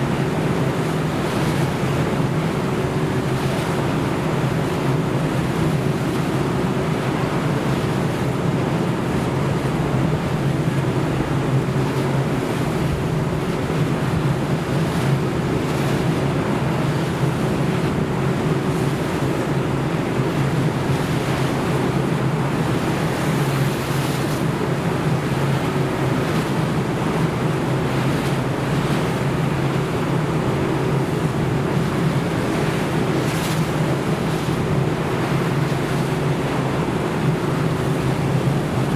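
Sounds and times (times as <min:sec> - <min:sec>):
wind: 0:00.0 - 0:38.9
ship engine hum: 0:12.3 - 0:38.9
waves rushing: 0:12.3 - 0:38.9.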